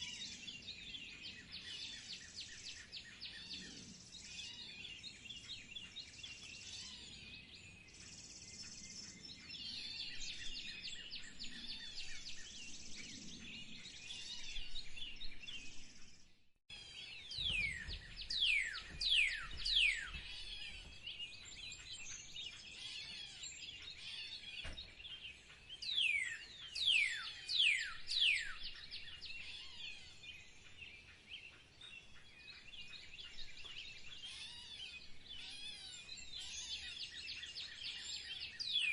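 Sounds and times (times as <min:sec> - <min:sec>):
songbirds chirping: 0:00.0 - 0:38.9
downward-sliding whistled bird notes: 0:17.2 - 0:22.3.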